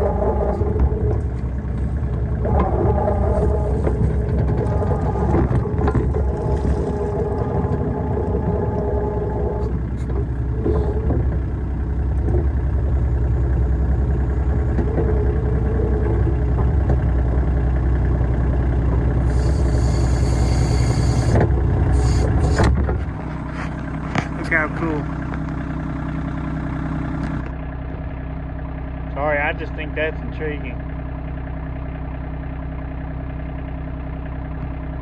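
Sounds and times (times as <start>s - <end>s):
whining tone: 0.0s - 17.5s, 19.2s - 27.6s
tractor diesel engine running: 0.0s - 35.0s.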